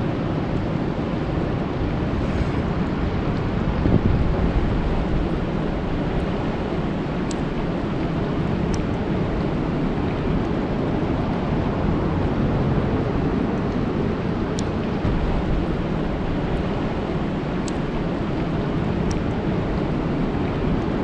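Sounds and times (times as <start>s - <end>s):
deep low rumble: 1.5s - 6.9s, 14.7s - 20.5s
rain falling on a lake: 4.2s - 21.0s.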